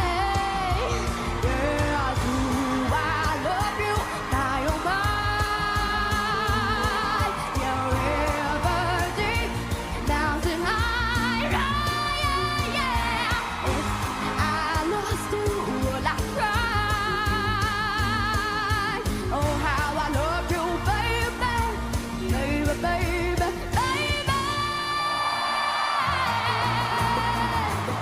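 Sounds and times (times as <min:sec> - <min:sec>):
band accompaniment: 0:00.0 - 0:24.8.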